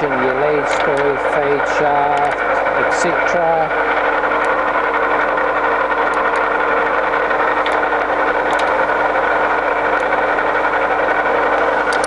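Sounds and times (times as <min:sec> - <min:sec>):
lathe running with mechanical hum: 0:00.0 - 0:12.0
gearbox levers clicking: 0:08.5 - 0:08.8.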